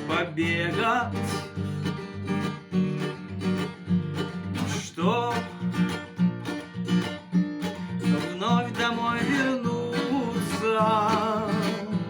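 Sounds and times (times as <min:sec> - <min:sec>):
man singing: 0:00.0 - 0:01.7, 0:04.6 - 0:06.1, 0:08.0 - 0:12.0
strummed guitar: 0:00.0 - 0:12.0.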